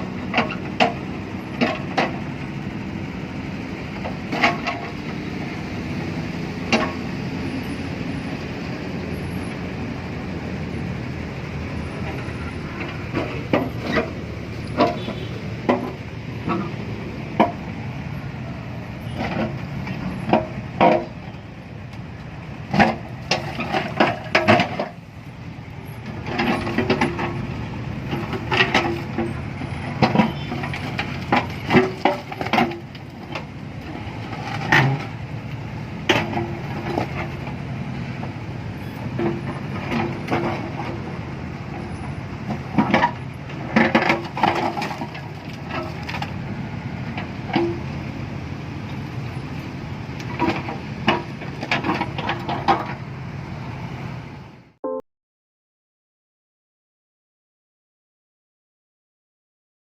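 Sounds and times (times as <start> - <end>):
sharp knocks and clanks: 6.6 - 7.1, 12.8 - 17.8, 19.1 - 21.4, 26.2 - 27.4, 28.0 - 33.5, 36.0 - 37.5, 47.1 - 48.1, 50.2 - 53.0.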